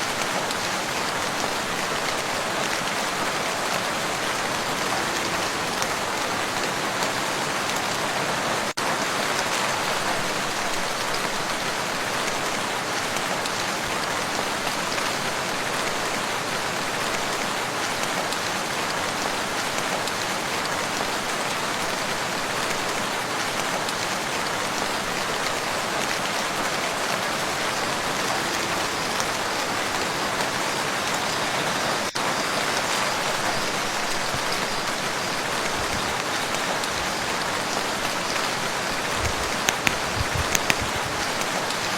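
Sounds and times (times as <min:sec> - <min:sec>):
rain falling on a lake: 0:00.0 - 0:41.9.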